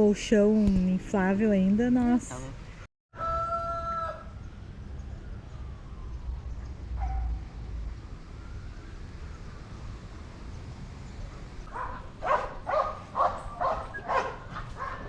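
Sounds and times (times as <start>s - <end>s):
dog barking: 7.0s - 7.3s, 11.7s - 15.0s.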